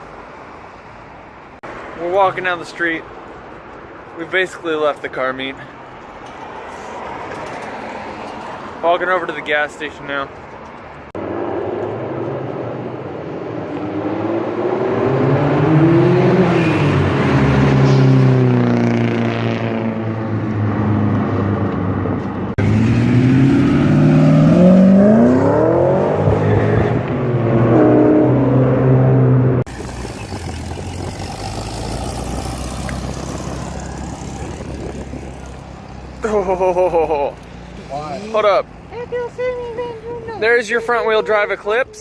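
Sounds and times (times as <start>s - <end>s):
car engines revving: 11.1s - 39.0s.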